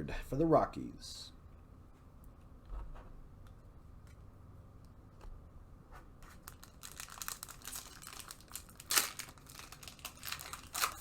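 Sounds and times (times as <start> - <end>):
plastic wrapper crinkling: 6.3 - 11.0.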